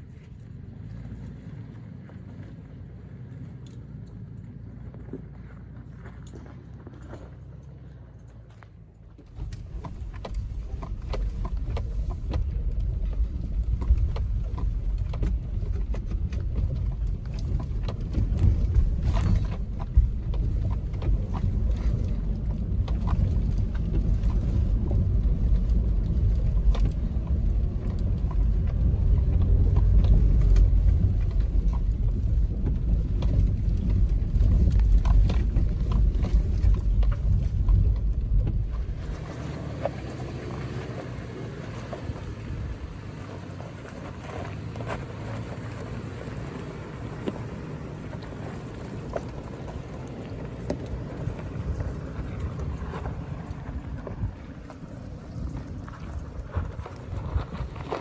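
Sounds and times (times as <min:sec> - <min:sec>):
vehicle driving low rumble: 0:00.0 - 0:58.0
knocks and rattles: 0:09.3 - 0:40.0.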